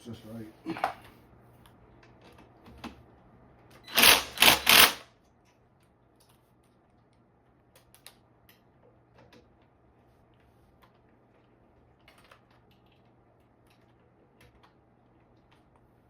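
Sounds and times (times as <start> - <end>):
loud mechanical clatter: 3.9 - 5.0.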